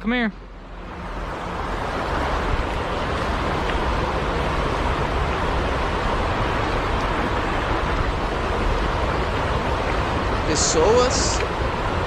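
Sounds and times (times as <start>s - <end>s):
river water rushing: 0.4s - 12.0s.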